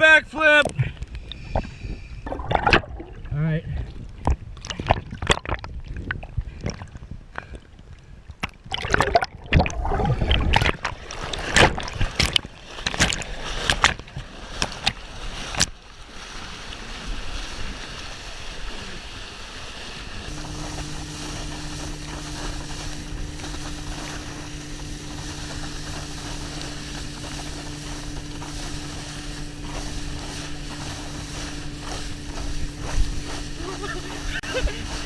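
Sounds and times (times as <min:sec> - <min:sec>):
rush of water and wind: 0:00.0 - 0:35.0
water splashing and sloshing: 0:00.6 - 0:35.0
boat motor hum: 0:00.9 - 0:04.9, 0:19.0 - 0:35.0.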